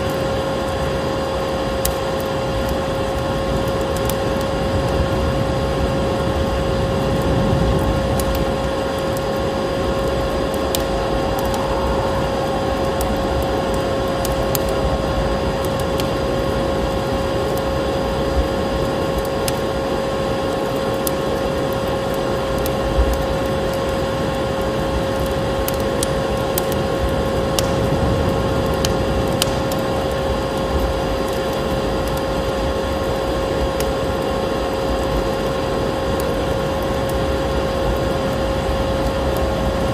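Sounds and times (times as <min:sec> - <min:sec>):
wood fire crackling: 0:00.0 - 0:39.9
vacuum cleaner running: 0:05.2 - 0:19.0.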